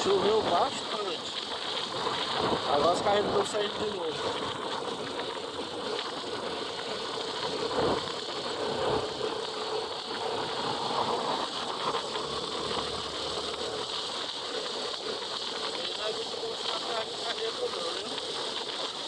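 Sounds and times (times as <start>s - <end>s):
tyres hissing on wet road: 0.0s - 19.0s
vehicle engines passing: 10.3s - 14.0s.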